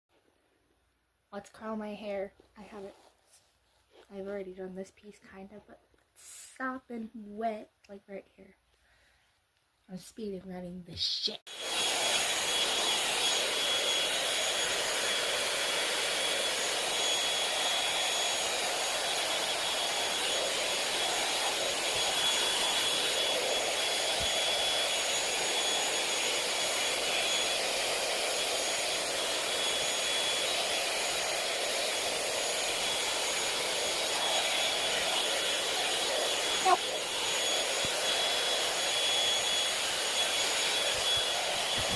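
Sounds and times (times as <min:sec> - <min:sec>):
hair dryer brush running: 0:11.5 - 0:41.9.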